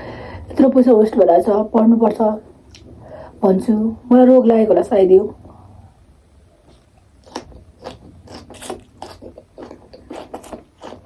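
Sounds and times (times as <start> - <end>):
crunchy food being chewed: 6.6 - 11.0.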